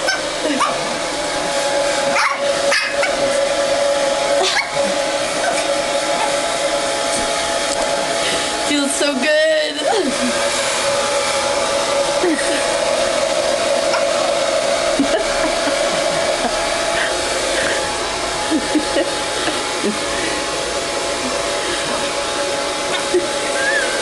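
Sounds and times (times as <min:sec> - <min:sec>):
hair dryer blowing: 0:00.0 - 0:24.0.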